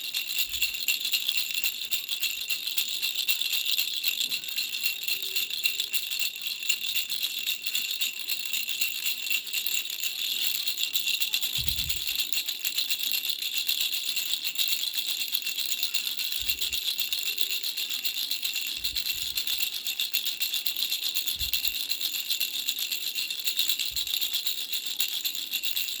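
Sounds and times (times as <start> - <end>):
toy rattles shaken: 0.0 - 26.0.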